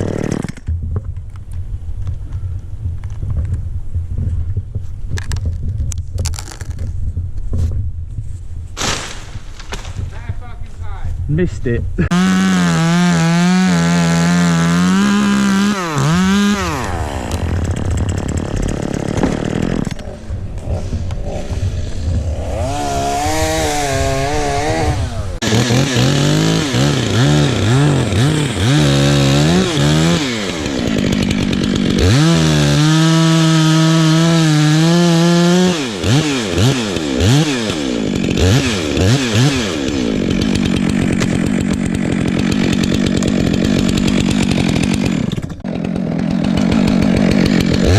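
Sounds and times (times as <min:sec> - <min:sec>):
chainsaw cutting wood: 0:00.0 - 0:00.8, 0:12.0 - 0:47.9.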